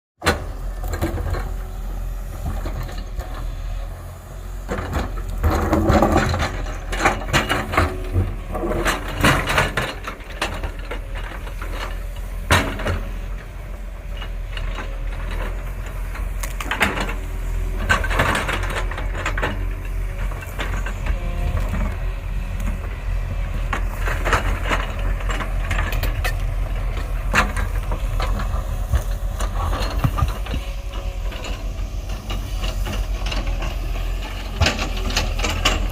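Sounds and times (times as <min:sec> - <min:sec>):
diesel engine rumble: 0:00.2 - 0:35.9
metallic clanks and knocks: 0:16.6 - 0:35.9.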